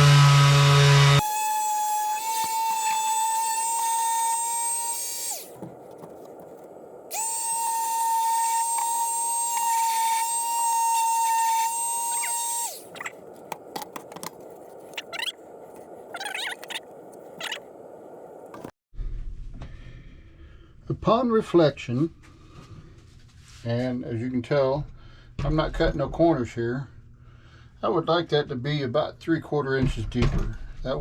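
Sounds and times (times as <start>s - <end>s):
palm sander whining: 0.0s - 17.6s
handling clicks and scrapes: 5.2s - 7.3s, 10.9s - 17.6s.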